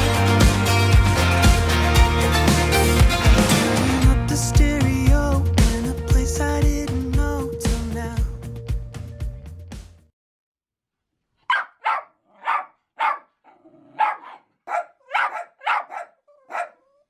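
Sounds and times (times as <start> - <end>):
music: 0.0 - 9.9
small dog barking: 11.5 - 17.0.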